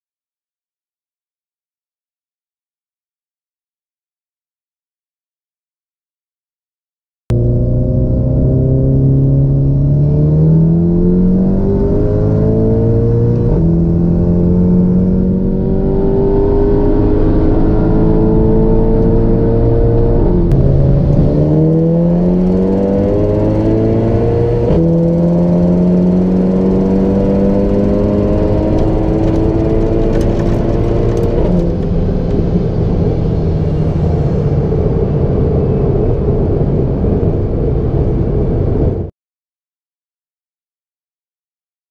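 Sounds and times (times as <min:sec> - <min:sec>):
car engine accelerating: 0:07.3 - 0:39.1.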